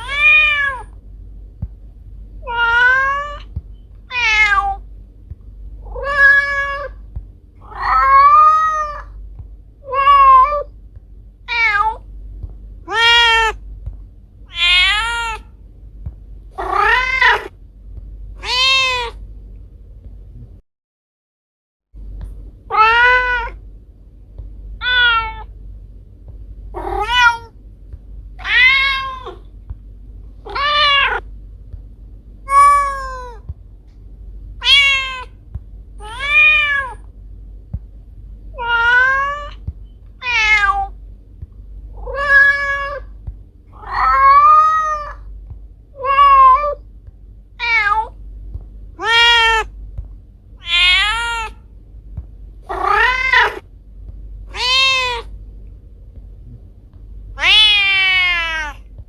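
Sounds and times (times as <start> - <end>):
cat meowing: 0.0 - 0.9, 2.4 - 3.5, 4.1 - 4.8, 5.8 - 7.0, 7.6 - 9.2, 9.8 - 10.7, 11.5 - 12.0, 12.9 - 13.6, 14.5 - 15.5, 16.6 - 17.5, 18.4 - 19.2, 22.7 - 23.6, 24.8 - 25.5, 26.8 - 27.5, 28.4 - 29.4, 30.4 - 31.2, 32.5 - 33.4, 34.6 - 35.4, 36.0 - 37.0, 38.6 - 39.6, 40.2 - 40.9, 42.0 - 43.1, 43.8 - 45.3, 46.0 - 46.8, 47.6 - 48.2, 49.0 - 49.7, 50.6 - 51.6, 52.7 - 53.6, 54.5 - 55.3, 57.4 - 58.8
low steady hum: 0.0 - 20.6, 21.9 - 59.0.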